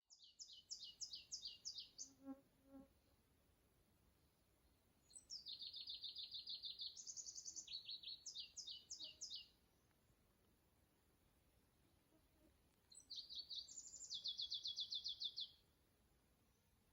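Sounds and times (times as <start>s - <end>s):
songbird singing trills: 0.0s - 2.2s, 4.2s - 9.9s, 12.9s - 15.6s.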